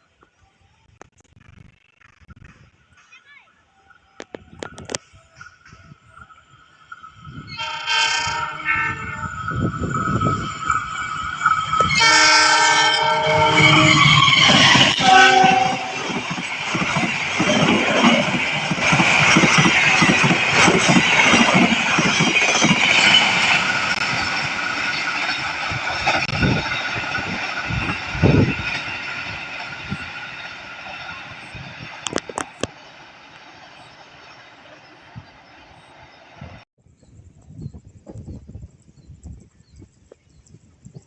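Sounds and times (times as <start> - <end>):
train passing with rushing roar: 3.8 - 36.6
locomotive horn blasts: 7.5 - 9.4, 11.8 - 16.1
wheels clattering over rail joints: 7.5 - 36.2.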